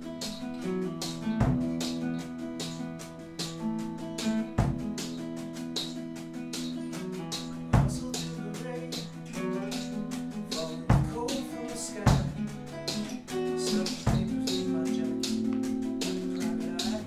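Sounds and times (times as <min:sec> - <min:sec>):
guitar chords ringing: 0:00.0 - 0:17.0
band playing a song: 0:00.2 - 0:17.0
cymbal ticks: 0:00.2 - 0:17.0.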